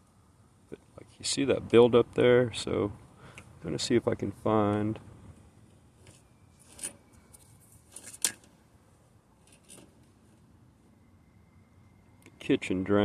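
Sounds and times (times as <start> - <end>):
faint handling clicks and rustles: 9.4 - 10.5.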